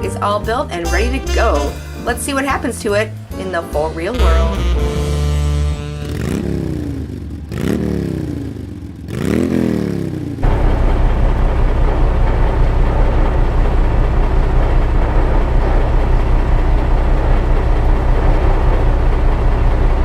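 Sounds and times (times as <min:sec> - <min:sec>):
truck engine rumble: 0:00.0 - 0:09.2, 0:10.2 - 0:20.0
road noise: 0:05.6 - 0:20.0.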